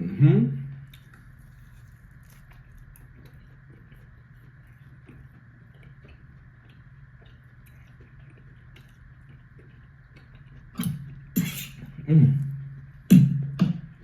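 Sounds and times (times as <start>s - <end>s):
faint steady hum: 0.0s - 14.0s
soft chewing with mouth clicks: 0.7s - 14.0s
food rustling: 0.9s - 6.3s.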